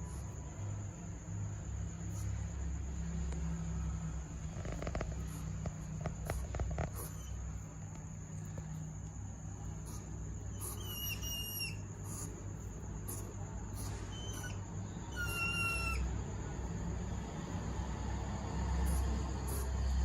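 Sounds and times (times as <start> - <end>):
hedgehog whistling chirp: 10.5 - 12.3, 13.1 - 16.1.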